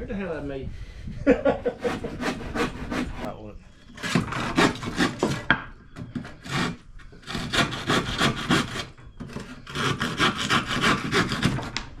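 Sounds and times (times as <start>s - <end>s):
handsaw cutting wood: 1.7s - 3.3s, 4.0s - 12.0s.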